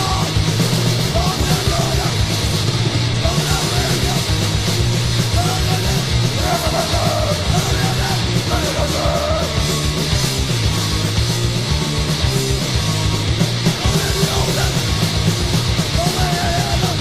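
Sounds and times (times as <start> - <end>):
shouted vocals: 0.0 - 0.4, 1.0 - 2.3, 3.2 - 4.4, 5.2 - 9.6, 13.8 - 14.9, 15.9 - 17.0
bass guitar: 0.0 - 17.0
distorted electric guitar: 0.0 - 17.0
fast drum beat: 0.0 - 17.0.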